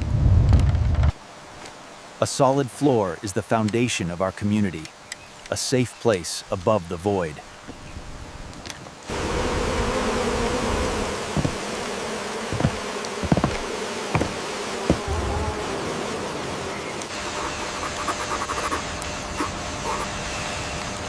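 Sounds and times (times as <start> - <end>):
steady hiss: 1.1 - 8.3
insect buzzing: 9.0 - 20.7.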